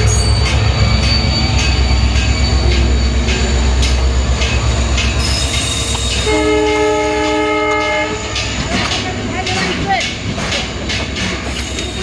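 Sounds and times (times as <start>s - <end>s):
train rumbling at speed: 0.0s - 12.0s
wheels clattering over rail joints: 0.0s - 12.0s
train horn blast: 6.2s - 8.5s.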